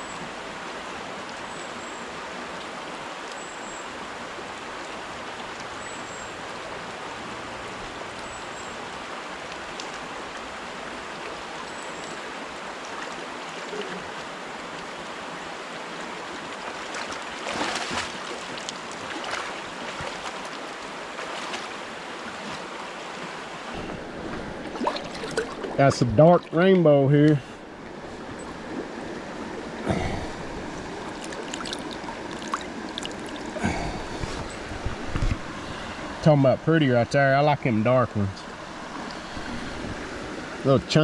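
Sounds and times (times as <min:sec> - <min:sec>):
river rushing over rocks: 0:12.3 - 0:36.2
sharp noises: 0:23.7 - 0:28.6.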